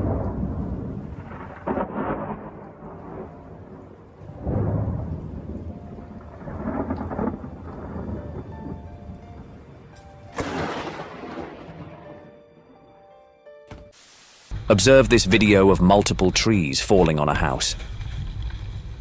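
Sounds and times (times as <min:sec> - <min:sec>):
steady rain: 0:00.0 - 0:12.0, 0:14.0 - 0:19.0
thunder crack and rumble: 0:00.0 - 0:12.3.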